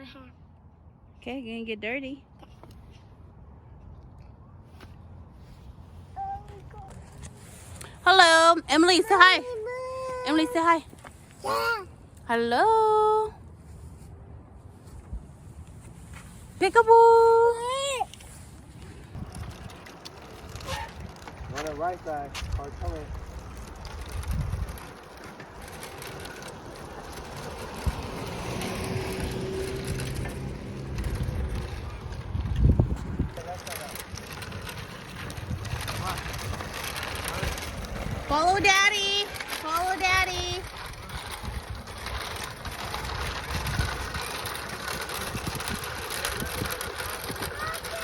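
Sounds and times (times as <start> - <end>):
car road noise: 18.6 - 48.0
wind buffeting microphone: 18.7 - 48.0.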